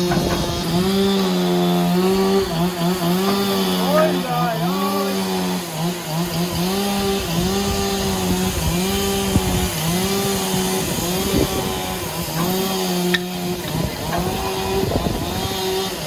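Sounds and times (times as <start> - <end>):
motor saw cutting log: 0.0 - 16.0.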